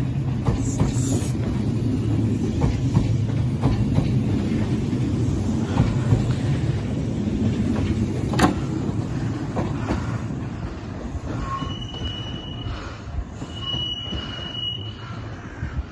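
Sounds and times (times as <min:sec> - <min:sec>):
train rumbling: 0:00.0 - 0:15.9
high thin wheel squeals: 0:11.3 - 0:12.8, 0:13.4 - 0:15.2.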